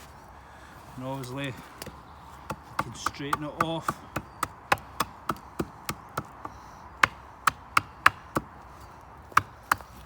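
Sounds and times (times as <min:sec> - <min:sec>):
axe chopping wood: 0:01.8 - 0:08.6, 0:09.3 - 0:10.0.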